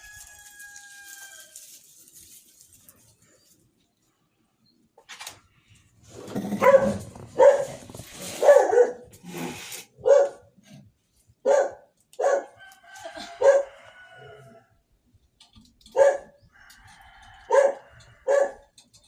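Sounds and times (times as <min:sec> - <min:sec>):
dog barking: 0:06.6 - 0:09.1, 0:10.0 - 0:10.5, 0:11.4 - 0:12.6, 0:13.4 - 0:13.7, 0:15.9 - 0:16.4, 0:17.5 - 0:18.7.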